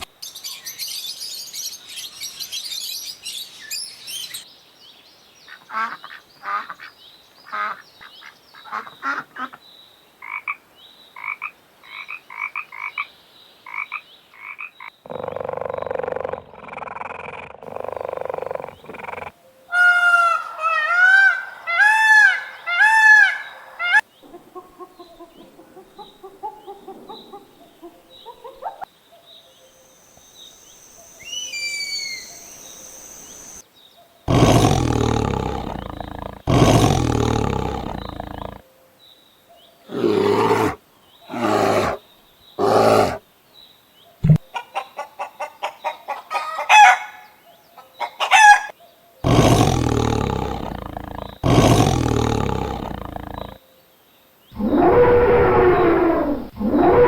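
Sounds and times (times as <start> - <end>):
falling chirps: 29.7 - 33.6
loud low animal call: 34.3 - 38.6, 49.2 - 53.6, 54.6 - 57.0
loud rising and falling cries: 54.6 - 57.0.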